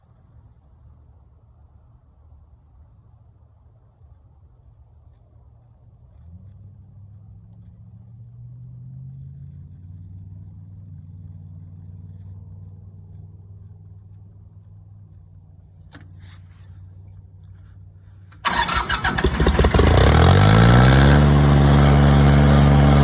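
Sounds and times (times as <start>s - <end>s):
engine humming: 5.7s - 23.0s.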